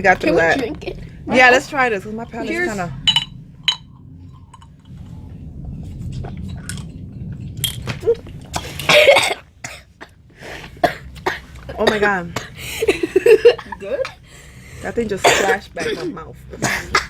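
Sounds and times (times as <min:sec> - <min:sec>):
glass clicks and clinks: 0:03.1 - 0:03.9
loud cough: 0:08.6 - 0:09.9, 0:15.2 - 0:17.0.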